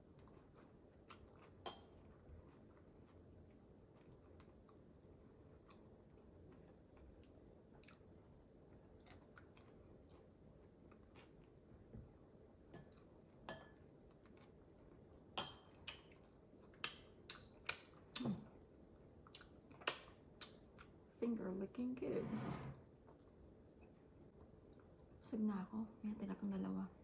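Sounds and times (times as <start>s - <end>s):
quiet chewing: 0.0s - 21.0s.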